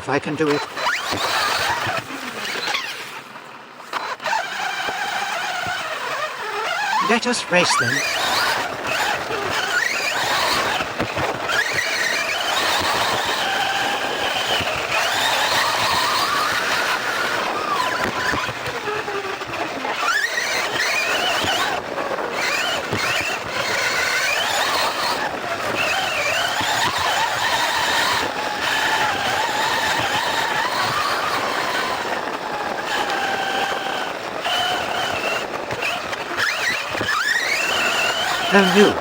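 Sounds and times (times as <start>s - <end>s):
radio-controlled car motors whining: 0.3s - 39.0s.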